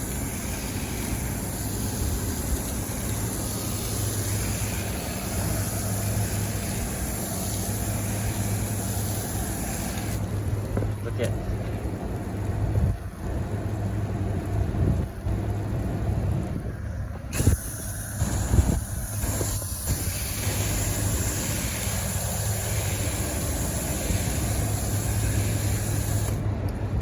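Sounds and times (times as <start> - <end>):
hiss of spray: 0.0 - 10.3, 17.3 - 26.4.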